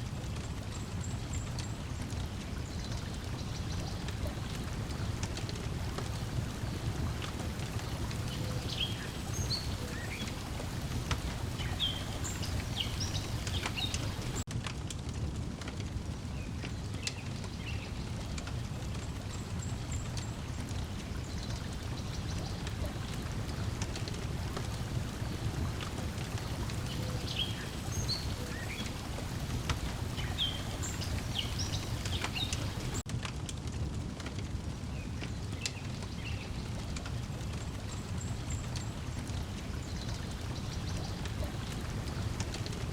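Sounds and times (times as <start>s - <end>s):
fire crackling and popping: 0.0s - 42.9s
small birds chirping: 0.8s - 14.5s, 19.2s - 33.0s, 35.0s - 42.9s
water lapping: 1.7s - 14.5s, 19.3s - 33.0s.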